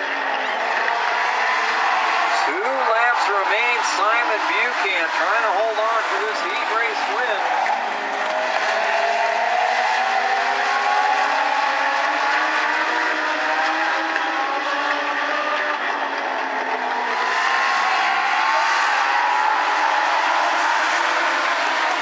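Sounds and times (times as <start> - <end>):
race car engines revving: 0.0 - 22.0.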